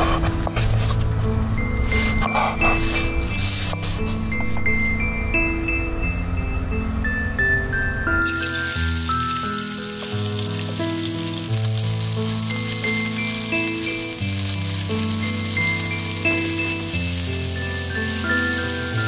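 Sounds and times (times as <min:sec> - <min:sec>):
background music: 0:00.0 - 0:19.0
fruit sizzling in oil: 0:08.2 - 0:19.0.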